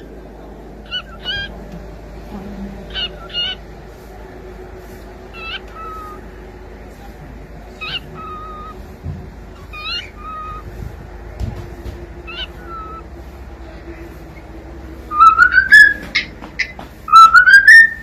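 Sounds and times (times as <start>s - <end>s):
cockatiel calling: 0.8s - 1.6s, 2.9s - 3.6s, 5.3s - 6.2s, 7.7s - 8.9s, 9.5s - 10.8s, 12.2s - 13.1s, 15.1s - 18.0s.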